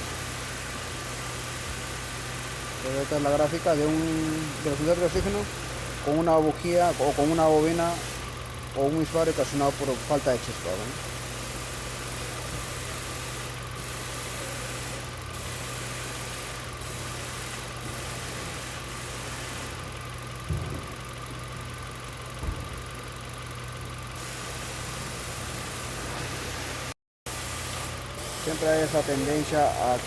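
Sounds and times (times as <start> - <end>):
car engine idling unevenly: 2.8 - 11.0, 20.0 - 24.0
brief thumps: 20.5 - 21.0.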